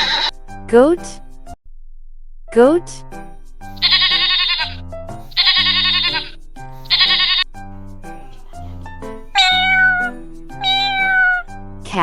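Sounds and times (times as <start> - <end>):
cat meowing: 0.0 - 0.3, 3.8 - 7.4, 8.3 - 11.5
goat bleating: 0.0 - 0.3, 3.7 - 7.5, 9.4 - 11.5
light background music: 2.5 - 12.0.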